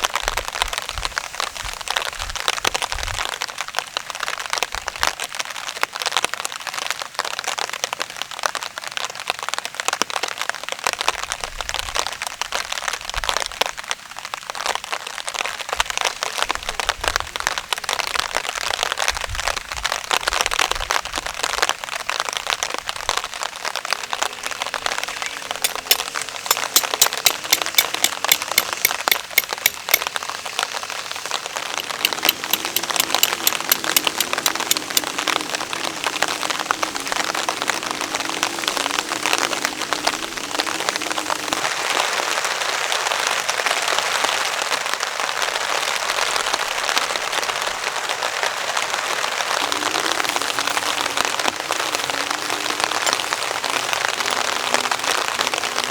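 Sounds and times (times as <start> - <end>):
heavy rain on a tarp: 0.0 - 25.6, 34.4 - 55.9
large drops ticking: 25.6 - 30.1, 31.8 - 35.2.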